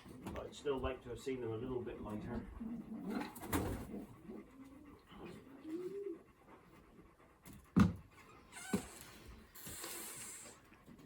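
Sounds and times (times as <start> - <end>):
pigeons cooing: 2.0 - 6.5.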